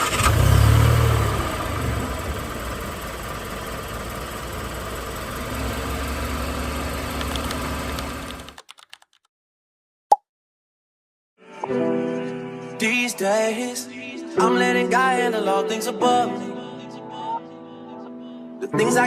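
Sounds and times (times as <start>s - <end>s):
car engine running: 0.0s - 8.5s.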